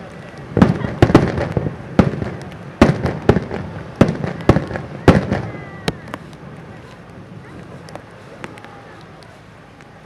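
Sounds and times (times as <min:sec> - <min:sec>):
firework booms: 0:00.5 - 0:06.2.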